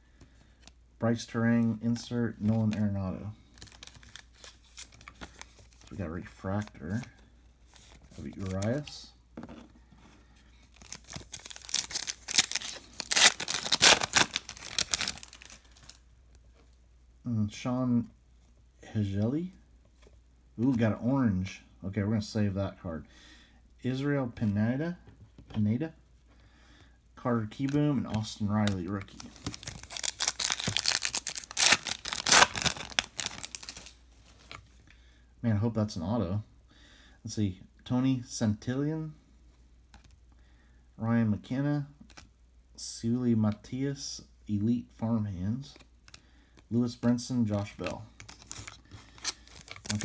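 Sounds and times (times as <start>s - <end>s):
foil wrapper tearing and crinkling: 10.8s - 16.0s, 29.4s - 34.0s, 48.2s - 50.0s.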